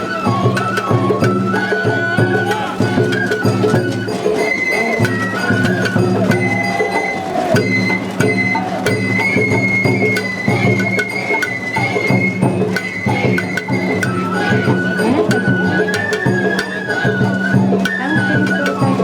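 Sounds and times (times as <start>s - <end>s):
bamboo flute melody: 0.0s - 19.0s
drum strokes: 0.0s - 19.0s.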